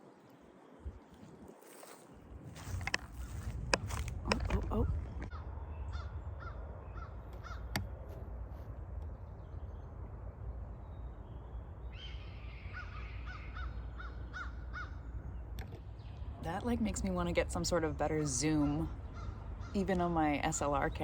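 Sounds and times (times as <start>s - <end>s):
low rumble: 2.3s - 21.0s
crows cawing: 5.3s - 7.8s, 12.7s - 15.0s, 19.0s - 19.8s.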